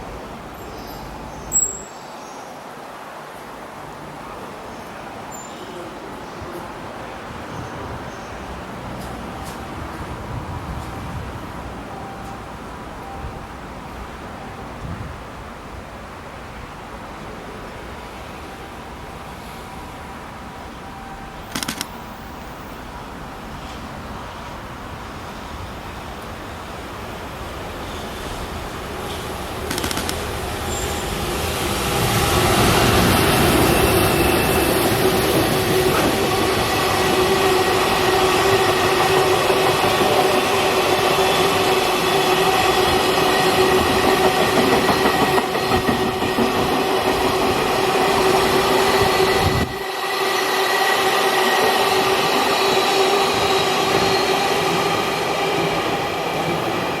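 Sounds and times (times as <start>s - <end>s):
freight train wheels rumbling on rails: 5.8s - 15.3s, 21.3s - 57.0s
high wheel squeal: 48.3s - 55.1s.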